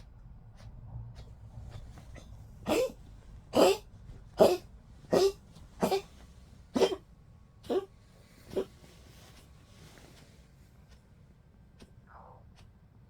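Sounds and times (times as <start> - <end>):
dog coughing: 2.6 - 7.9, 8.5 - 8.7.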